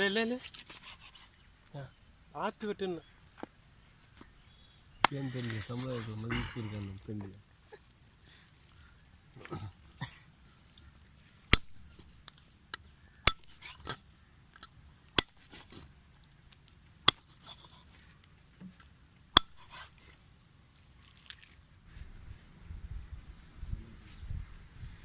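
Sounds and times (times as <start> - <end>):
rustling and scraping: 0.1 - 1.5, 5.3 - 8.7, 15.3 - 16.0, 17.2 - 23.4.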